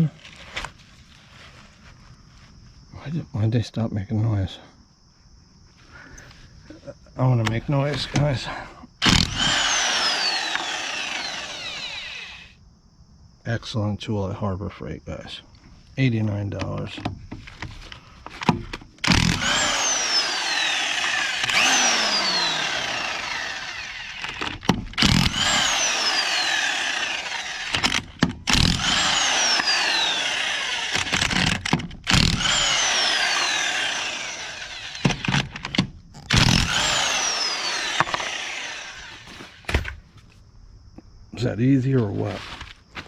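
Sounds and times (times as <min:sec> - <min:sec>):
electric impact wrench bursts: 0:09.0 - 0:12.6, 0:19.0 - 0:39.8.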